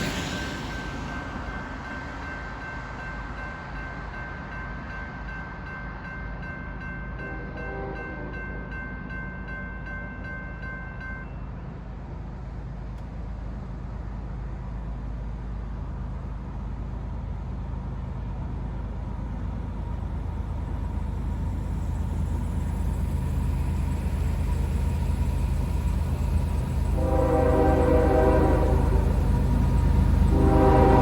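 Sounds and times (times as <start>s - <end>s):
diesel locomotive engine rumble: 0.0s - 31.0s
locomotive air horn: 26.9s - 31.0s.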